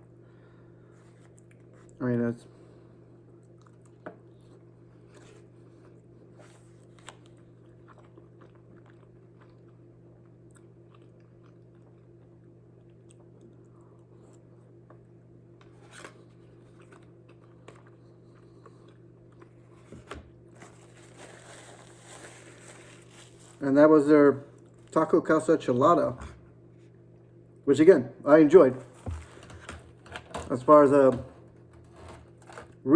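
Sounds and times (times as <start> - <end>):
person chewing food: 3.3 - 19.8.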